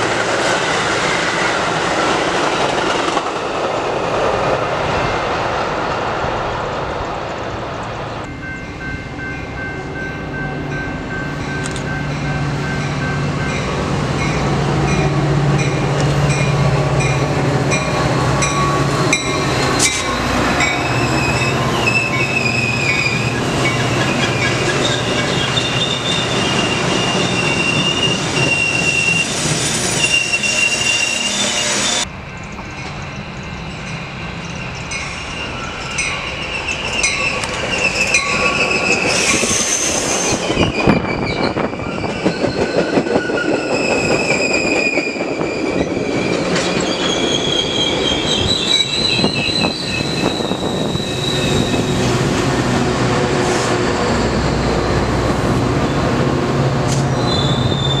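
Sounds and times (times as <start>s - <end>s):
train rumble: 0.0s - 58.0s
wheels squealing against rails: 15.6s - 52.4s, 53.1s - 55.1s, 56.9s - 58.0s.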